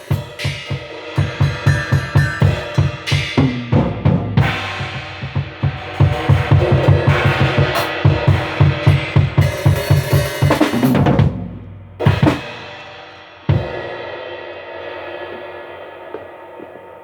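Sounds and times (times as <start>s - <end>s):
quick drum hits: 0.0s - 12.9s
loud drum hits with cymbals: 0.0s - 16.9s.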